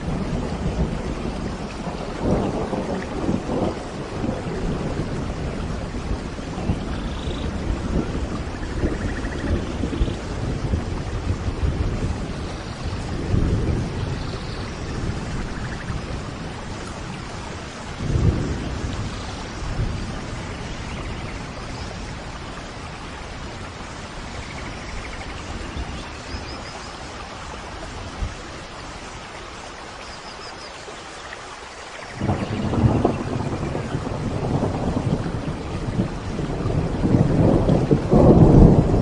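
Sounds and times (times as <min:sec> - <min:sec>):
thunder rolling: 0:00.0 - 0:22.4, 0:32.1 - 0:39.0
steady rain: 0:00.0 - 0:39.0.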